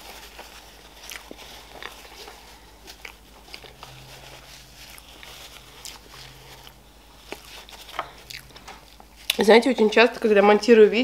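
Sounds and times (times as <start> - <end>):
faint low hum: 0.0 - 11.0
chewing with wet mouth clicks: 1.0 - 4.0, 4.9 - 9.4.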